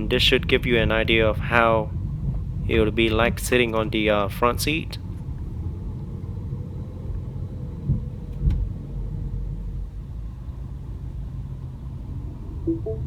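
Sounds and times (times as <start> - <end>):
car engine and road rumble: 0.0 - 12.7.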